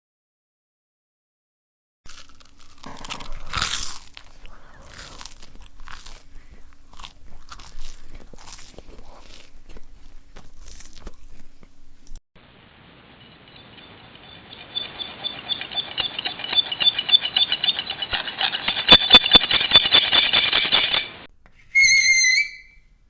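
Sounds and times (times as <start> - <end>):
chewing crunchy food: 2.1 - 11.8.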